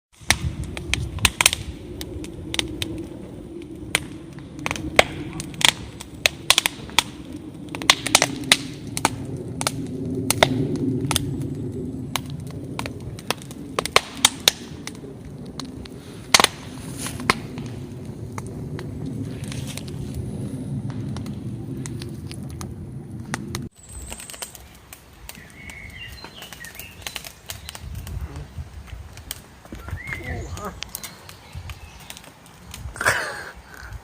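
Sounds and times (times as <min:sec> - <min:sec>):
fire crackling and popping: 0:00.1 - 0:34.0
low rumble of flames: 0:00.1 - 0:34.0.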